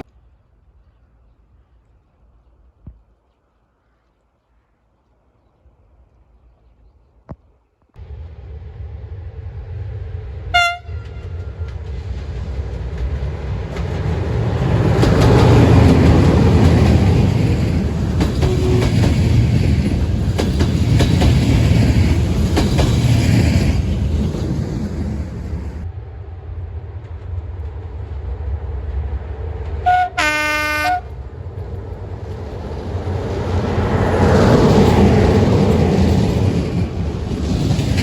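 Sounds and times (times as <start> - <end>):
train passing rumble: 8.0 - 38.0
train horn blast: 10.5 - 11.6, 18.4 - 19.2, 29.8 - 31.2
wheels clicking over rail joints: 11.0 - 25.2.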